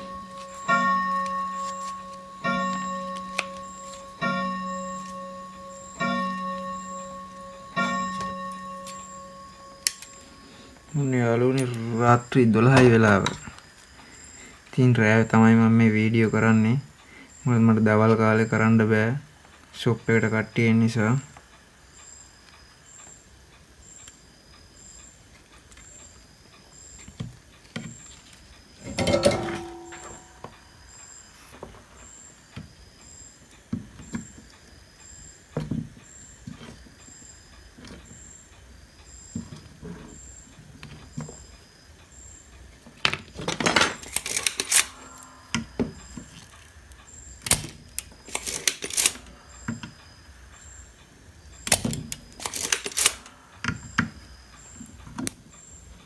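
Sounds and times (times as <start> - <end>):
clicks and clatter of tools: 0.0 - 4.2, 7.8 - 10.9, 11.5 - 12.0, 27.1 - 30.6, 43.0 - 46.8, 47.4 - 49.9, 51.7 - 53.8.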